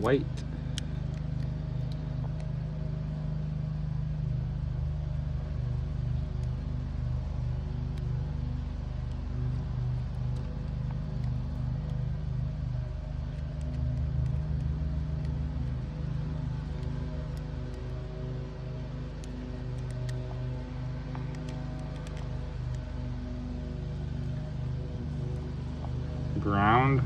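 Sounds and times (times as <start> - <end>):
low machine drone: 0.0 - 27.0
faint small clicks: 0.5 - 2.5, 7.9 - 8.1, 10.0 - 12.0, 12.8 - 18.1, 19.2 - 23.0.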